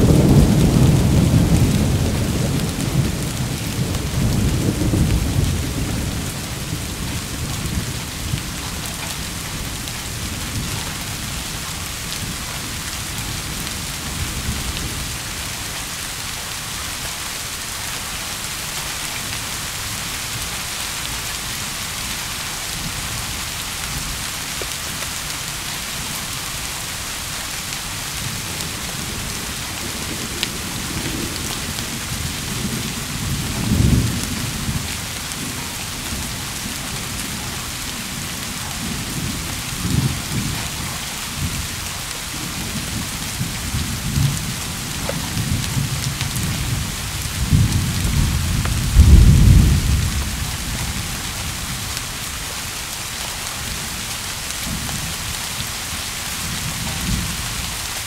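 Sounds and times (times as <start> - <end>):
rolling thunder: 0.0 - 11.6, 42.4 - 51.8
heavy rain: 0.0 - 58.0.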